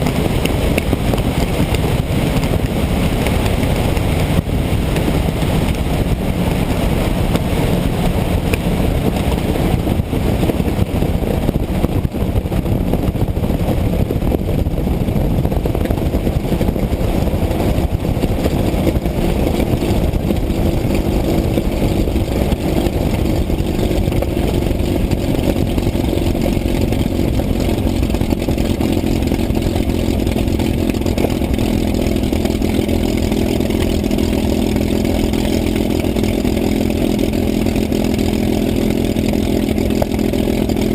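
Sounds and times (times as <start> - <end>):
piston aircraft engine: 0.0 - 40.9.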